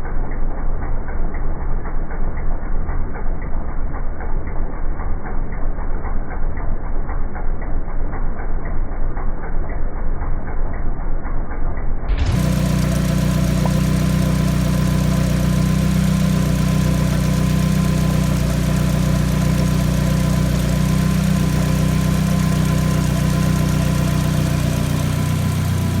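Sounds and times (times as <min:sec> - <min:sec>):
car engine idling: 0:12.1 - 0:26.0.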